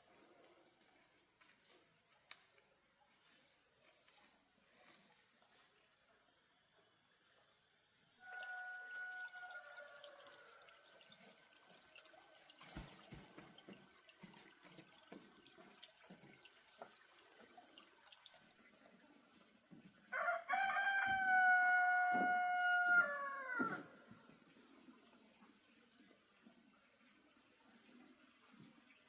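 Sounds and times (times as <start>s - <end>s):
rooster crowing: 8.2s - 10.9s, 20.1s - 24.0s.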